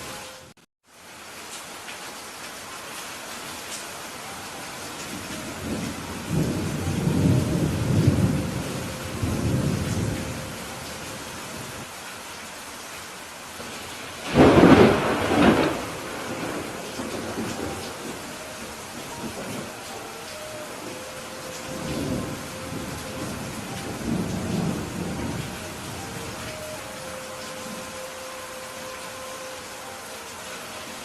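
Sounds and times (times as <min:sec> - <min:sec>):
steady rain: 0:00.0 - 0:31.0
thunder rumbling: 0:05.1 - 0:10.8, 0:13.7 - 0:28.0
sharp thunderclap: 0:14.2 - 0:17.7.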